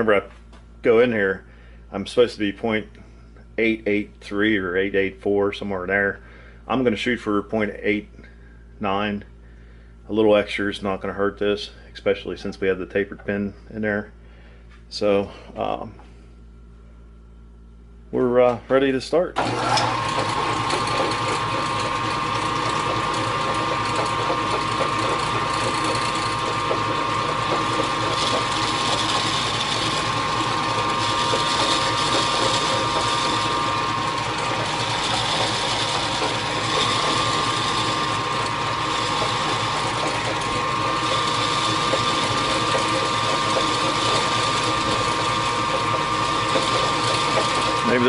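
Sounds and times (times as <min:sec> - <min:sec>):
machine tool gear whine: 0:19.4 - 0:48.0.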